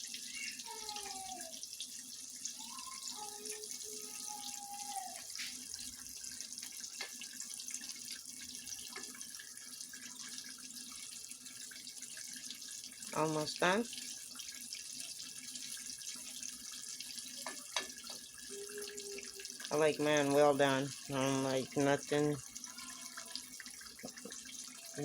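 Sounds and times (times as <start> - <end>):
fish sizzling in hot oil: 0.0 - 25.0
oil popping and crackling: 5.0 - 7.6, 14.6 - 18.4, 22.4 - 25.0.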